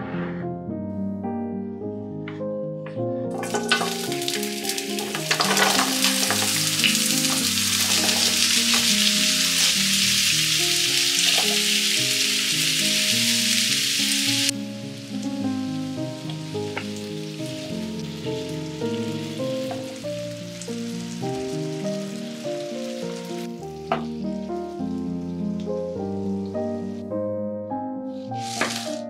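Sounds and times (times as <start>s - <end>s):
potato frying in hot oil: 3.4s - 25.9s, 28.4s - 29.0s.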